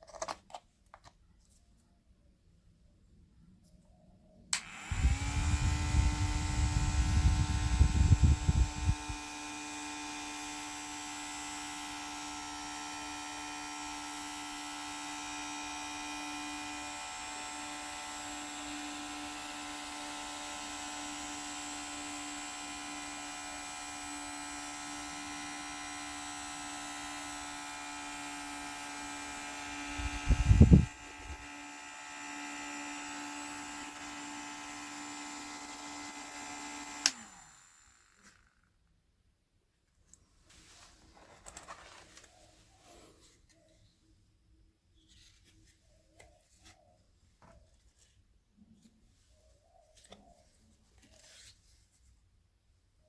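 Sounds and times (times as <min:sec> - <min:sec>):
small electric motor whining: 0:04.6 - 0:38.7.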